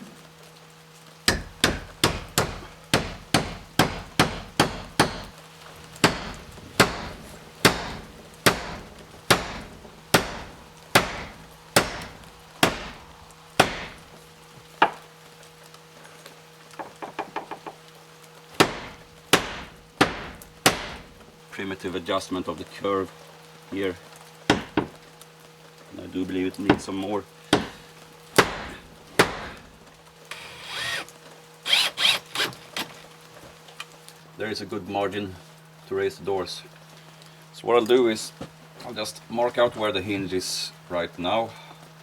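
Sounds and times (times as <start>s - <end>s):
hammer blows: 1.3s - 5.3s, 6.0s - 14.2s, 18.6s - 21.2s, 28.4s - 29.7s.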